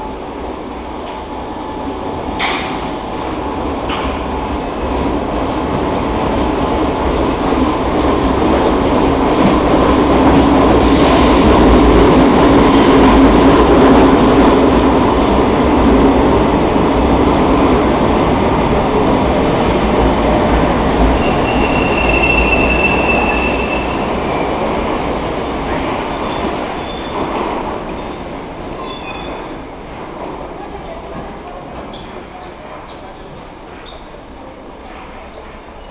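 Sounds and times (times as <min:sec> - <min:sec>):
train rumble: 0:00.0 - 0:35.9
train wheel squeal: 0:21.2 - 0:24.5, 0:26.1 - 0:27.3, 0:28.8 - 0:29.5.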